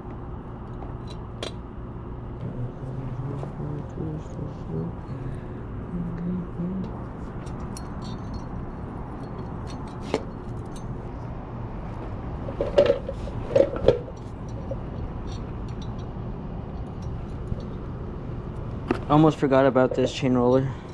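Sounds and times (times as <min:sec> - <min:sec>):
low background hum: 0:00.0 - 0:20.9
metal tools clinking: 0:07.4 - 0:11.0.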